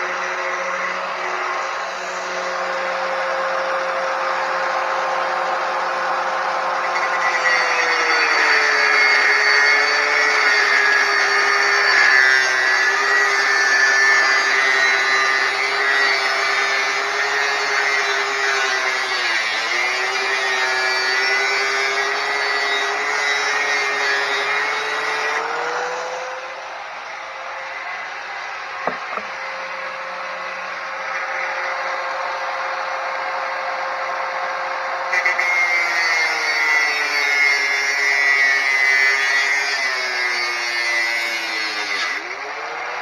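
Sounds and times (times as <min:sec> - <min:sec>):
angle grinder cutting steel: 0:28.9 - 0:29.4.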